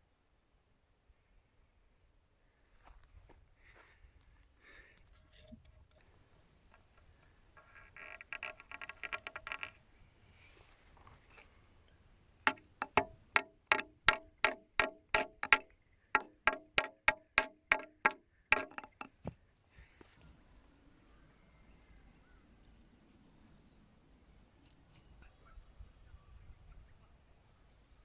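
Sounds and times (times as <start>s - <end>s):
hammer driving nails into wood: 12.5s - 19.2s.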